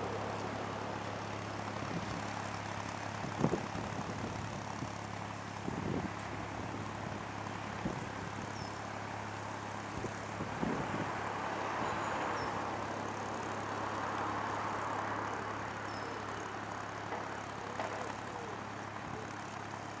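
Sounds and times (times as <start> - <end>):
boat engine humming: 0.0 - 3.4, 8.5 - 20.0.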